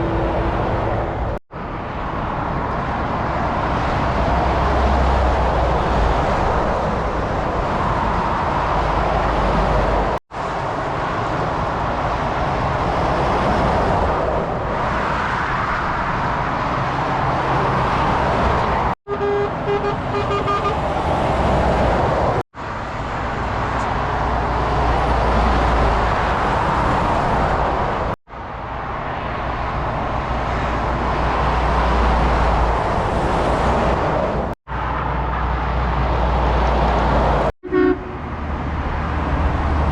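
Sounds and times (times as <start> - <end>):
heavy motorway traffic: 0.0 - 39.9
truck horn toots: 19.1 - 20.9, 37.6 - 38.3.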